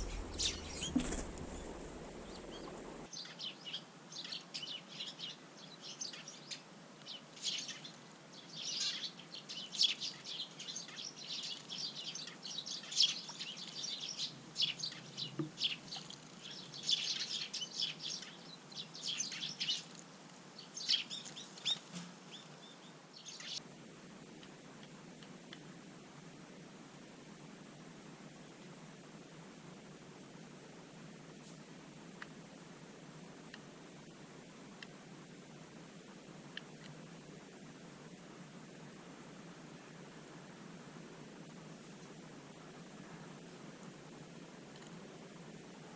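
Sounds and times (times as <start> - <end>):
small birds chirping: 0.0 - 23.6
faint steady hiss: 0.0 - 45.9.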